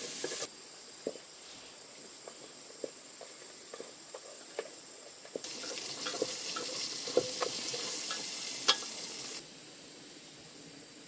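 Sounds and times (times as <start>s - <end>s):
sizzling hiss: 0.0s - 0.5s, 5.3s - 10.5s.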